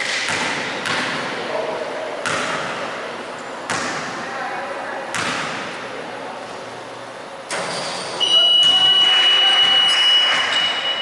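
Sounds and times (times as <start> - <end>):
noisy basketball gym: 0.0 - 11.0
steady high-pitched tone: 8.2 - 11.0.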